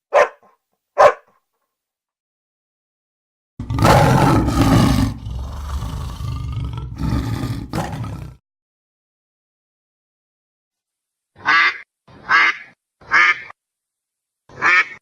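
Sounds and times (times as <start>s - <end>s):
tiger roaring: 3.6s - 8.4s.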